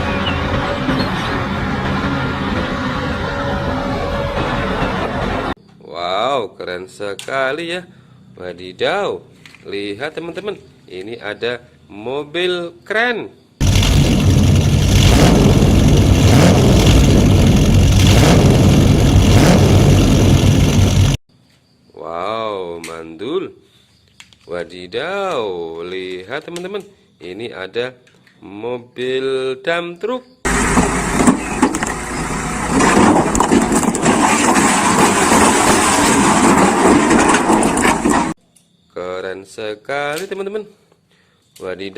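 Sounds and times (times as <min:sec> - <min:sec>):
vehicle engine running: 0:00.0 - 0:05.5, 0:13.6 - 0:21.2, 0:30.5 - 0:34.8.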